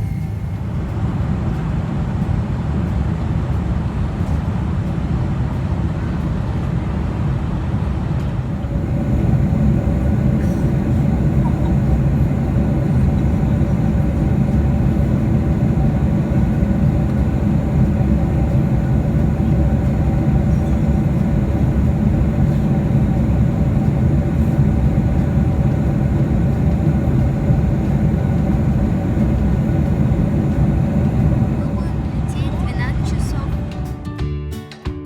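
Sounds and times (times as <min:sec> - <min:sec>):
airliner cabin engine drone: 0:00.0 - 0:33.9
faint steady tones: 0:08.4 - 0:33.6.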